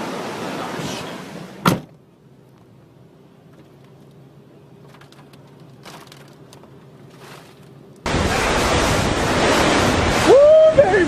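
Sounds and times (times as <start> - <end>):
soft rustles: 4.8 - 7.8.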